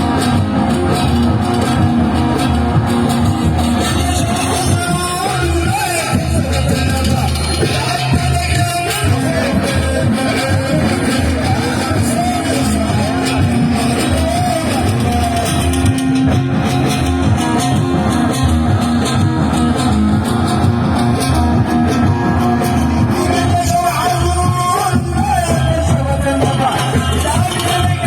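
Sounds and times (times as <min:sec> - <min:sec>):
live party music with beat: 0:00.0 - 0:28.0
person singing amplified: 0:03.5 - 0:16.4, 0:21.1 - 0:28.0.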